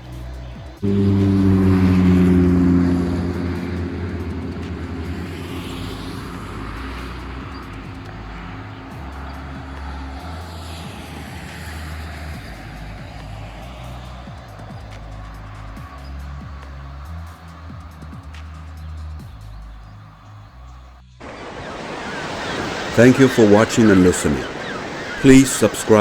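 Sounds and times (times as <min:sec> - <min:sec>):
tyre noise of passing vehicles: 0:00.0 - 0:20.5
heavy vehicle engine hum: 0:00.8 - 0:17.2.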